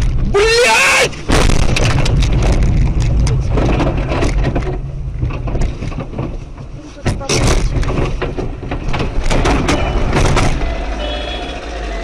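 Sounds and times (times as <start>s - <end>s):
car crash impact: 1.1s - 6.2s, 7.1s - 10.7s
rattling and scraping: 1.2s - 11.0s
car engine low rumble: 1.2s - 12.0s.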